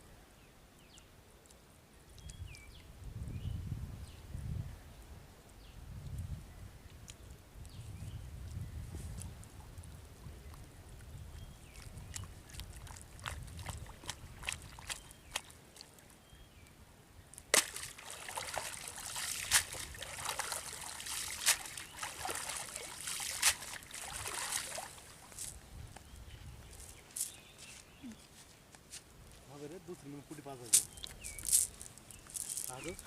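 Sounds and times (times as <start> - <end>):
water dripping and trickling: 9.2 - 16.1, 17.6 - 25.6
water splashing and sloshing: 11.7 - 16.1, 17.5 - 25.6.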